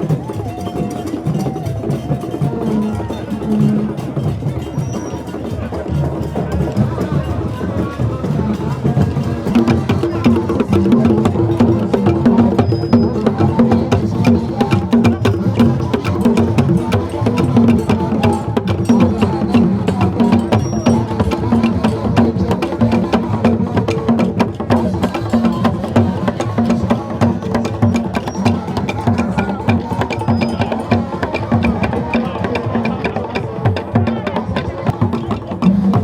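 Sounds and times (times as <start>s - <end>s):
drums: 0.0s - 36.0s.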